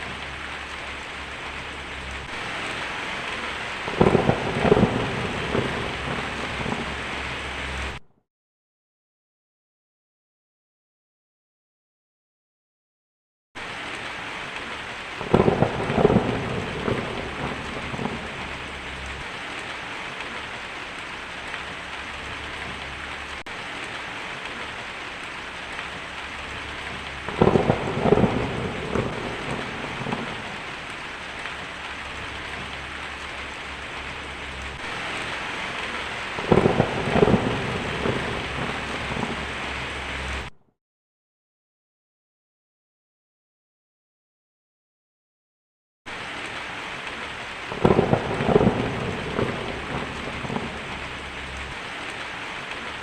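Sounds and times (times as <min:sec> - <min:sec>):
steady rain hissing: 0:00.0 - 0:08.0, 0:13.6 - 0:40.6, 0:46.1 - 0:53.0
thunderclaps rumbling: 0:00.0 - 0:08.0, 0:14.6 - 0:40.6, 0:47.6 - 0:53.0.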